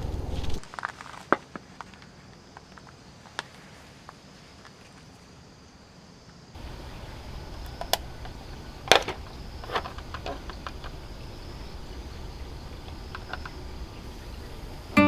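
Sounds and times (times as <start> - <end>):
light clicks and knocks: 6.6 - 15.0
steady background noise: 6.6 - 15.0.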